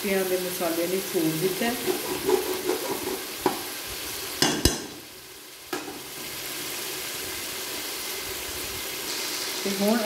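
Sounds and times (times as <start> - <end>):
steady sizzle: 0.0 - 10.0
spoon knocking against metal pot: 4.4 - 5.0.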